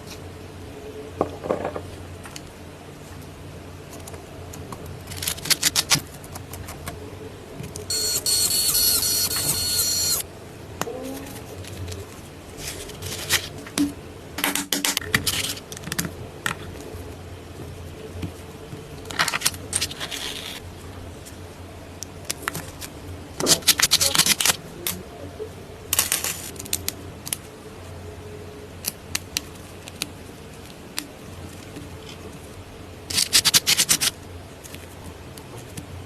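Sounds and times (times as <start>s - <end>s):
harsh high-pitched buzz: 7.9s - 10.3s.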